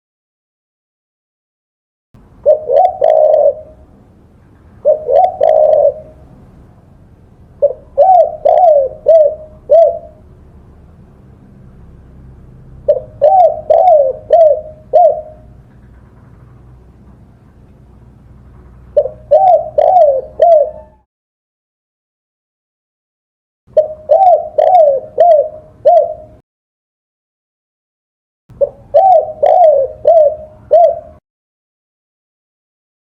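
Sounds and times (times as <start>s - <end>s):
dove cooing: 2.4s - 3.9s, 4.7s - 6.7s, 7.6s - 10.3s, 12.8s - 16.9s, 18.7s - 21.1s, 23.7s - 26.4s, 28.5s - 31.2s.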